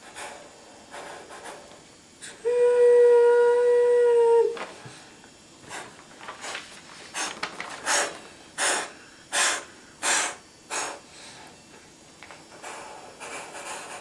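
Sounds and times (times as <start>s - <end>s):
person puffing out breath: 7.1s - 11.6s.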